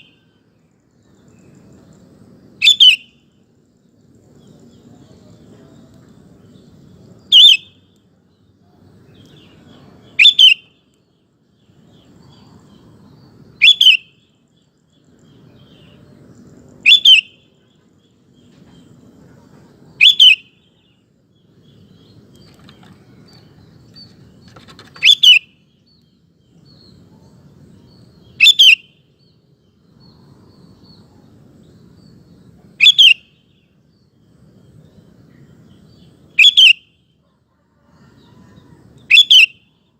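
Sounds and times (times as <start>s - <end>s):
bird calling double note: 7.3s - 7.7s, 10.2s - 10.7s, 32.8s - 33.3s
faint low rumble: 14.2s - 20.0s, 29.1s - 32.8s.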